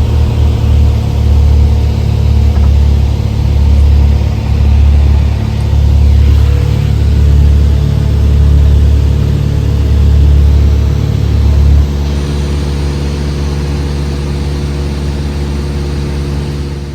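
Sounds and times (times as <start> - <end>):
small plane engine humming: 0.0 - 16.9.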